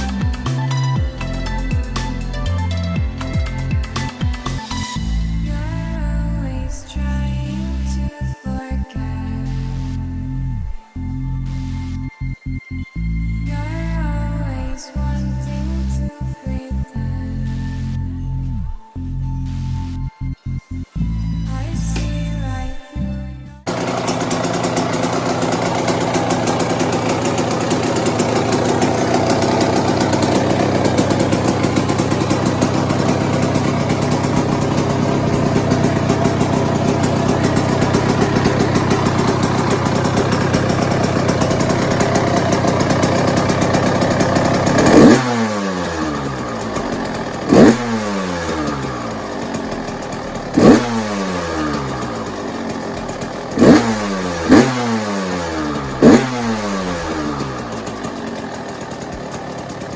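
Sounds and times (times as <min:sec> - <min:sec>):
dirt bike engine revving: 0:00.0 - 0:06.1, 0:23.7 - 0:59.9.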